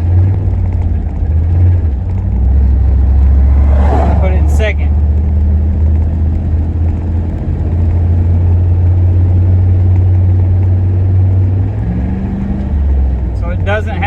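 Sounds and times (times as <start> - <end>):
truck engine drone: 0.0 - 14.0.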